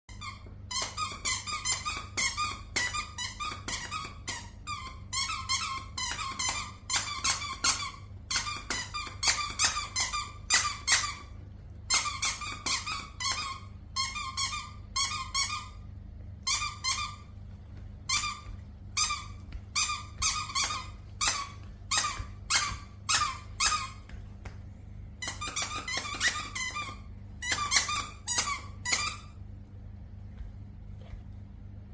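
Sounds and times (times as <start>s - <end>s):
squeaky dog toy squeaking: 0.1s - 17.3s, 18.0s - 24.2s, 25.2s - 29.4s
low hum: 7.8s - 31.9s.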